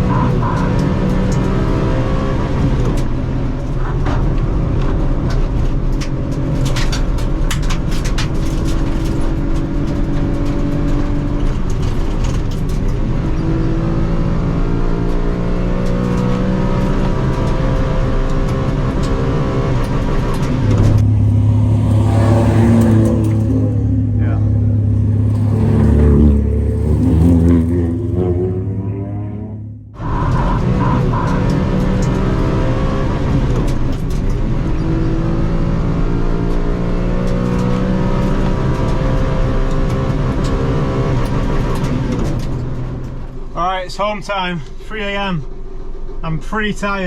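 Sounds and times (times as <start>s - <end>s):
car engine accelerating: 0.0s - 46.8s
low hum: 8.8s - 35.2s.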